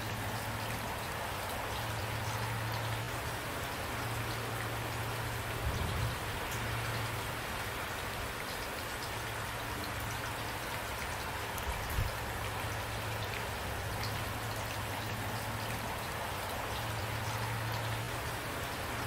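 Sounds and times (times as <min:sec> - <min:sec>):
individual raindrops: 0:00.0 - 0:19.0
steady rain falling: 0:00.0 - 0:19.0.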